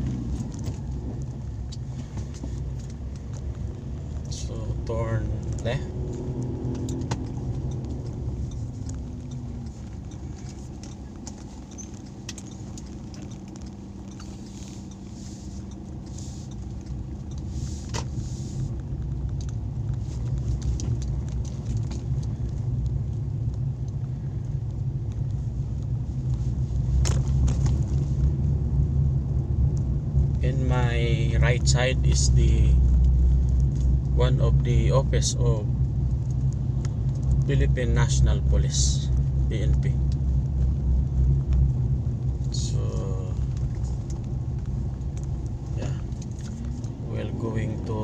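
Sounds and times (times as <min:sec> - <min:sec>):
vehicle engine and road rumble: 0:00.0 - 0:48.0
light clicks and rattles: 0:00.4 - 0:28.4, 0:29.3 - 0:48.0.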